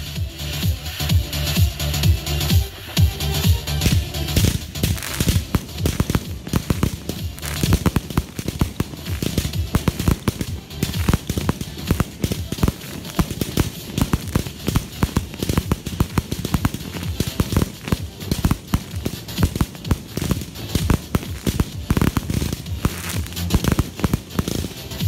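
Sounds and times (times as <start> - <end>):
fireworks crackling: 0.0 - 25.0
fireworks bangs: 3.1 - 25.0.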